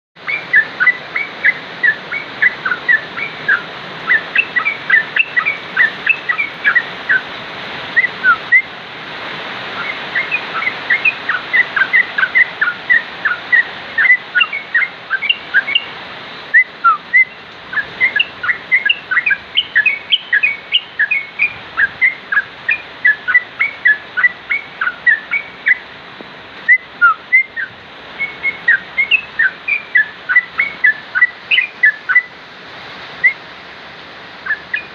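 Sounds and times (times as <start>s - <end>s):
bulbul whistled song: 0.2s - 7.3s, 8.0s - 8.7s, 9.8s - 25.9s, 26.7s - 32.3s, 33.2s - 33.4s, 34.4s - 34.9s
steady hiss: 0.2s - 34.9s.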